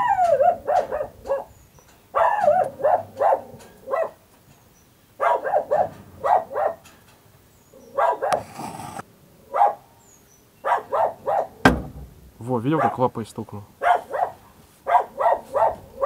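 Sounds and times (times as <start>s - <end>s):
dog barking: 0.0s - 4.2s, 5.2s - 6.9s, 7.9s - 8.4s, 9.5s - 9.9s, 10.6s - 11.6s, 12.7s - 13.0s, 13.8s - 16.0s.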